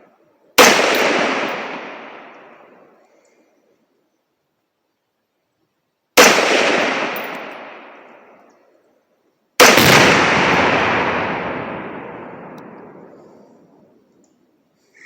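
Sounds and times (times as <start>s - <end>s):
rifle shots with rolling echo: 0.6s - 3.2s, 6.2s - 8.7s, 9.6s - 14.1s.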